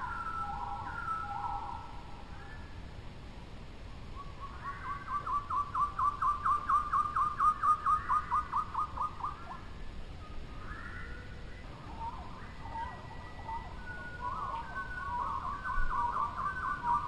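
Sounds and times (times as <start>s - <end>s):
bird trill of whistled notes: 0.0s - 2.7s, 4.2s - 9.6s, 10.2s - 17.0s
faint high bird calls: 0.0s - 2.9s, 4.0s - 17.0s.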